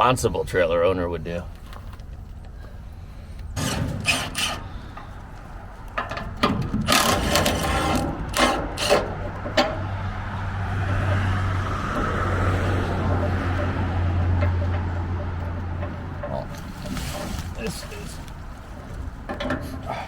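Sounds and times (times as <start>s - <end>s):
metal gear knocking and scraping: 3.6s - 5.1s, 5.9s - 20.0s
vehicle engine running: 4.6s - 20.0s.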